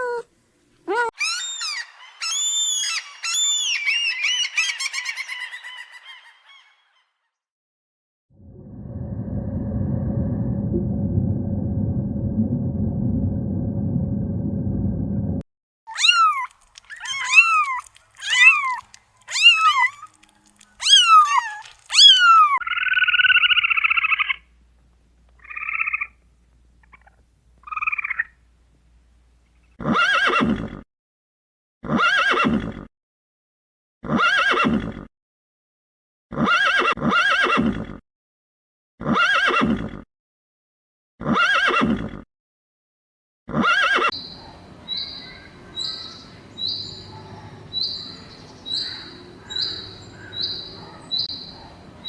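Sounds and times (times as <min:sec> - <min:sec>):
farm animal calls: 0:00.0 - 0:00.2, 0:00.9 - 0:06.1, 0:43.6 - 0:51.8.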